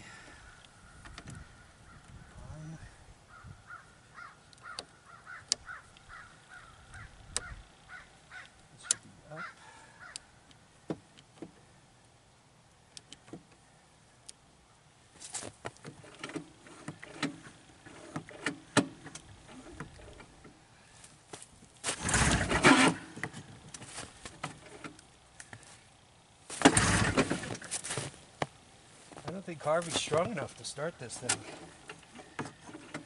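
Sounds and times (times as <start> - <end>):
crow cawing: 0.0 - 10.4.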